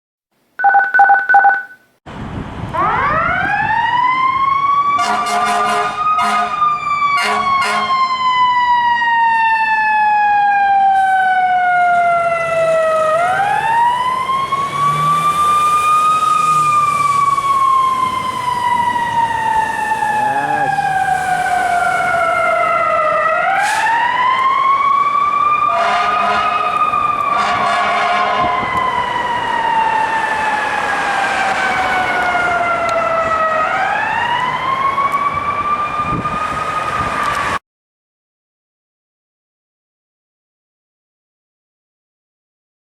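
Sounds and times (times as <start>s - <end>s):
pulsed alarm beeping: 0.6s - 1.8s
fire engine siren: 2.1s - 37.6s
air horn blasts: 5.0s - 6.6s, 7.2s - 8.0s, 25.7s - 28.7s.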